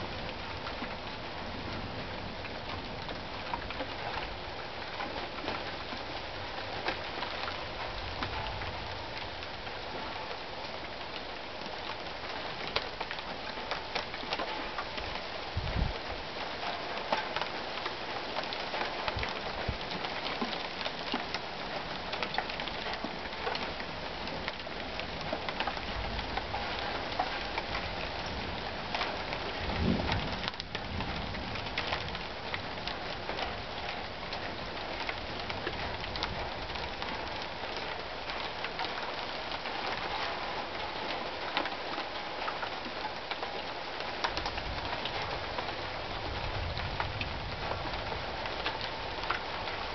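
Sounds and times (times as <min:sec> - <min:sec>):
heavy rain pouring: 0:00.0 - 0:49.9
low thunder rumble: 0:27.8 - 0:37.2.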